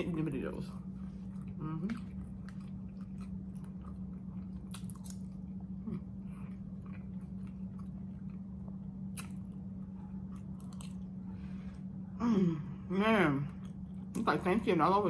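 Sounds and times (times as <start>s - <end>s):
low hum: 0.0s - 15.0s
person chewing food: 0.8s - 12.1s, 13.5s - 14.2s.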